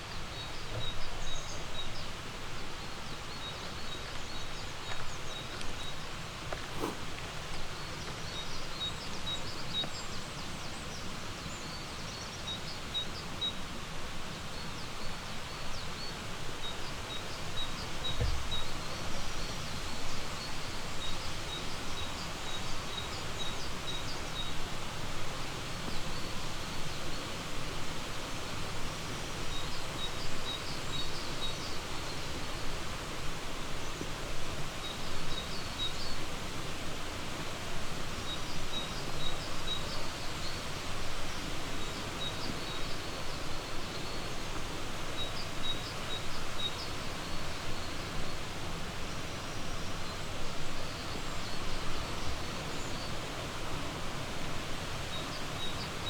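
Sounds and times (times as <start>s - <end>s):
faint birds chirping: 0.0s - 13.7s
flowing river water: 0.0s - 56.0s.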